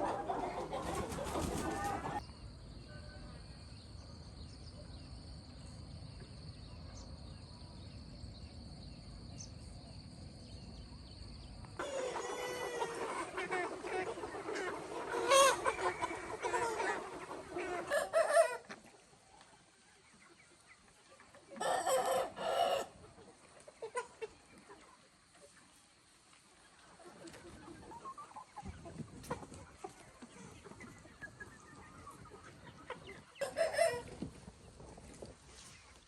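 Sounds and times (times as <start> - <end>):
chickens clucking: 0.0 - 2.3, 11.8 - 36.0.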